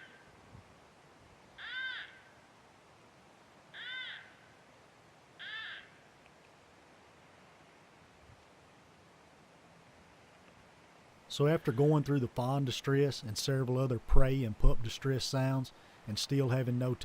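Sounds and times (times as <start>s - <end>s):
fawn distress bleats from caller: 1.6s - 2.2s, 5.4s - 5.9s.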